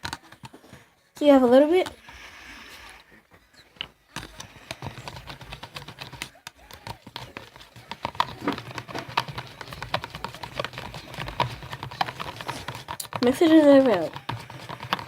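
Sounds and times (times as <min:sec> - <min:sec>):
utensil stirring slime in cup: 0:04.2 - 0:15.0.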